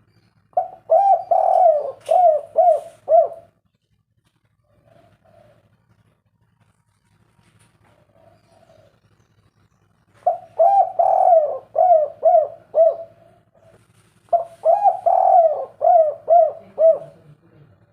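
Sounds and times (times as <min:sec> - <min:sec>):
dove cooing: 0:00.5 - 0:03.6, 0:04.6 - 0:06.1, 0:08.0 - 0:09.0, 0:10.2 - 0:17.3.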